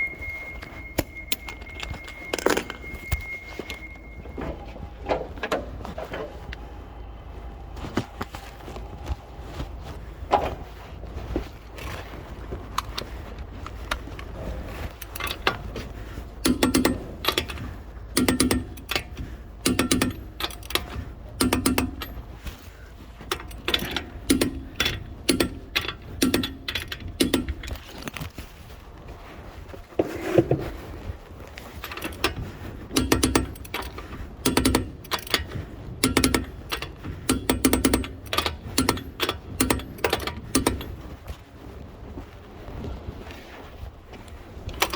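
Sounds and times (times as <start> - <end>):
faint handling noise: 0.0 - 44.9
ratchet wrench clicking: 15.0 - 15.6, 16.4 - 17.6, 18.2 - 22.2, 23.3 - 27.8, 31.8 - 41.0.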